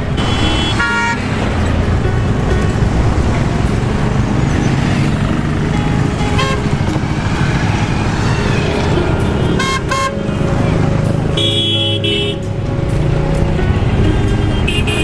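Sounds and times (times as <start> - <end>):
car horn toots: 0.0 - 1.8, 5.7 - 7.0, 8.3 - 10.5, 11.1 - 12.5, 14.0 - 15.0
road traffic engines: 0.0 - 15.0.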